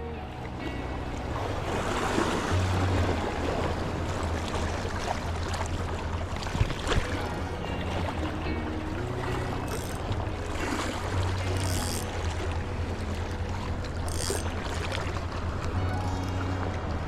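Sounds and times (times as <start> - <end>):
sea waves washing on shore: 0.5 - 17.0
wind buffeting microphone: 6.4 - 7.4.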